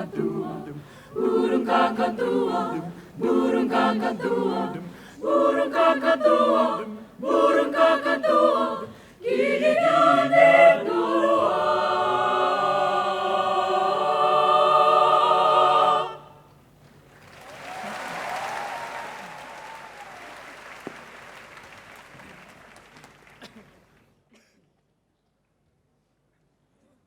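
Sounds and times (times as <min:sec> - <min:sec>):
choir singing a cappella: 0:00.0 - 0:16.5
audience applause: 0:17.1 - 0:23.4.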